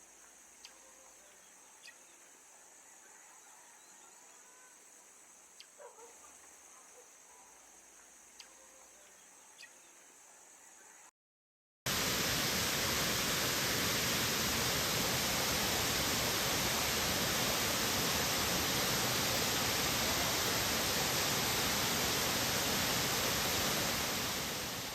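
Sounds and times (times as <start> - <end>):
waterfall rushing: 11.9 - 24.9.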